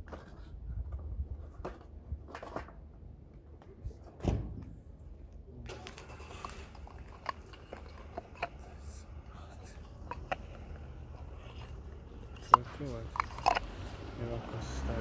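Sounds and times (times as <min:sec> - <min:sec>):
clicks and knocks of parts: 0:05.6 - 0:14.5
rough rustling: 0:05.7 - 0:15.0.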